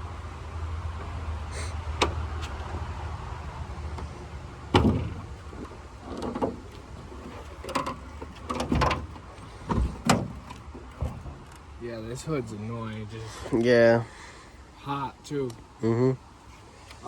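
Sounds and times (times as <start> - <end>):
knocks and clicks of hood latch: 4.7 - 5.2, 7.7 - 9.1
car hood latch clunk: 4.7 - 5.3.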